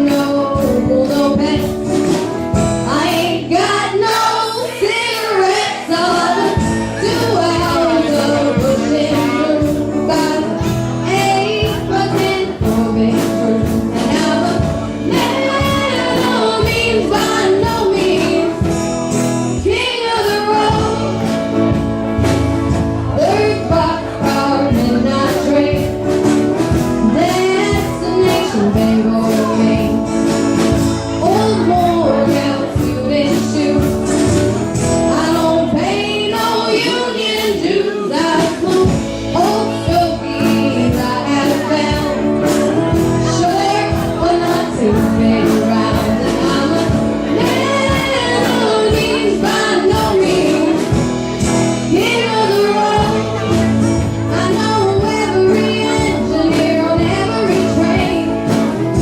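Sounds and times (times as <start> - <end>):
person singing: 0.0 - 18.7, 23.0 - 59.0.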